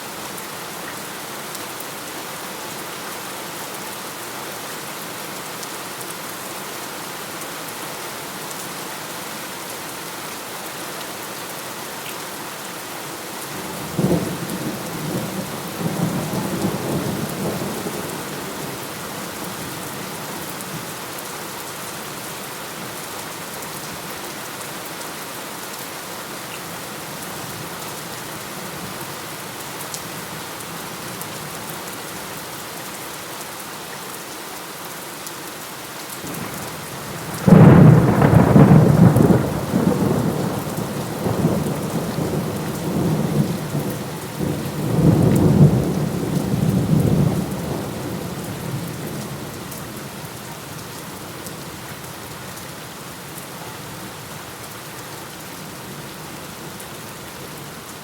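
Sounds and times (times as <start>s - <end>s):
heavy rain: 0.0s - 58.0s
thunder rumbling: 36.4s - 49.0s.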